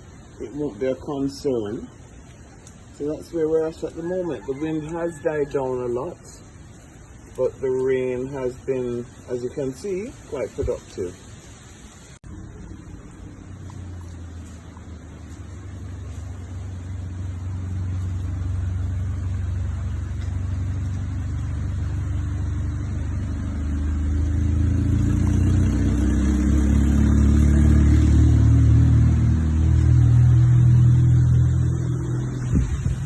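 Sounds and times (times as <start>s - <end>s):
vehicle engine running: 12.2s - 33.0s.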